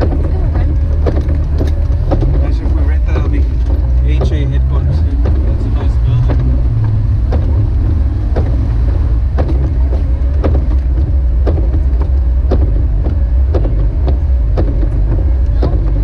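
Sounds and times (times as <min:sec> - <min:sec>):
engine and road rumble: 0:00.0 - 0:16.0
sharp ticking knock: 0:00.0 - 0:16.0.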